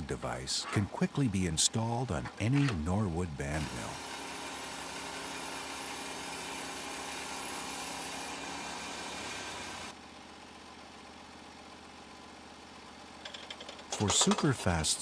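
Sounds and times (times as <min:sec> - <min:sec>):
sawmill engine and blade drone: 0:00.0 - 0:10.0, 0:14.0 - 0:15.0.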